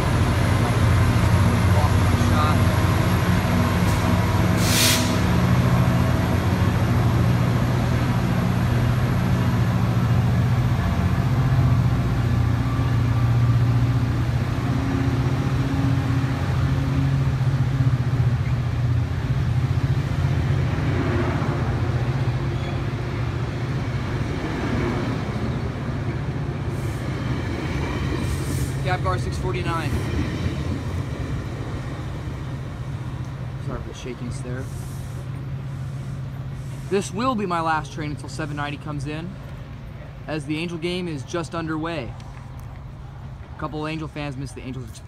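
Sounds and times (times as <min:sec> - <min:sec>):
diesel locomotive engine drone: 0:00.0 - 0:45.0
short hiss of air: 0:03.8 - 0:05.3, 0:34.6 - 0:37.0.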